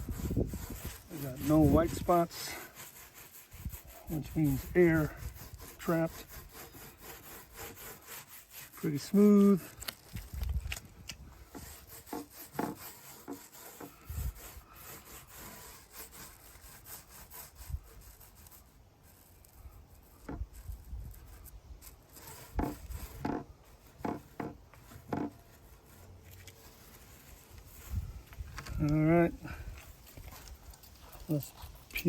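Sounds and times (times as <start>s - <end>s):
hands rubbing drum shell: 0.0s - 32.0s.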